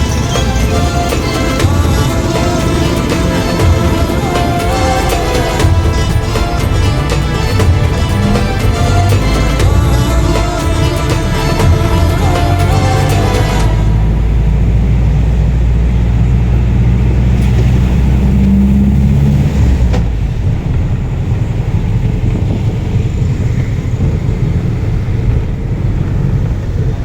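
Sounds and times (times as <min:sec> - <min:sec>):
music track: 0:00.0 - 0:14.5
vehicle engine rumbling: 0:00.0 - 0:27.0.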